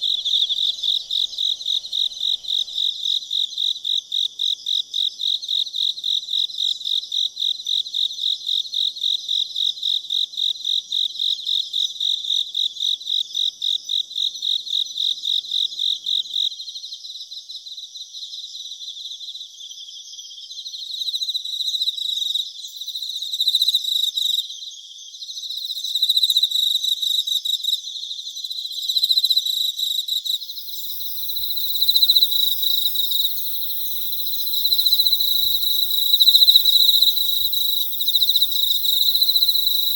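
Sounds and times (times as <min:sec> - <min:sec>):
insects high trill: 0:00.0 - 0:02.9, 0:30.4 - 0:39.9
crickets chirping: 0:00.0 - 0:04.2, 0:30.4 - 0:39.9.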